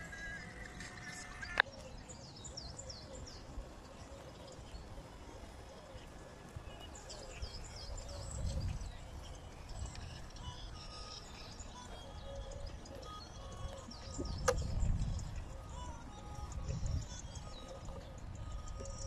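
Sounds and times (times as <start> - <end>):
small birds chirping: 0.0 - 19.0
sharp click: 14.4 - 14.7.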